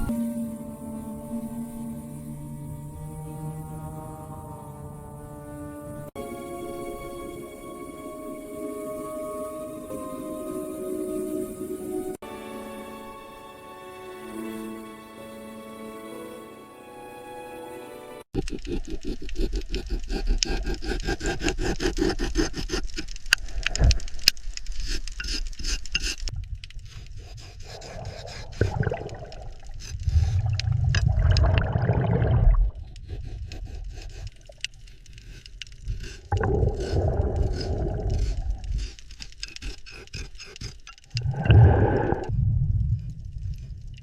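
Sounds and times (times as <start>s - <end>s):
dense rapid crackle: 18.4s - 31.0s
low grinding swells: 41.2s - 44.0s.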